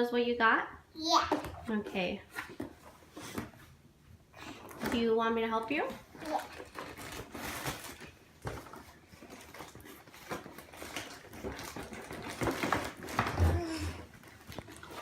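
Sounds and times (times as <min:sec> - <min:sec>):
packaging rustling: 0:05.8 - 0:15.0.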